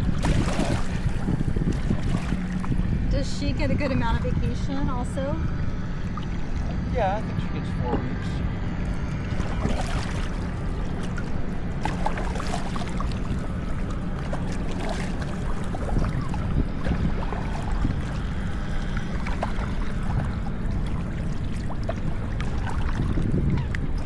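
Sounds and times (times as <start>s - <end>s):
paddles splashing in water: 0.0s - 3.2s, 8.8s - 24.0s
low rumble: 0.0s - 24.0s.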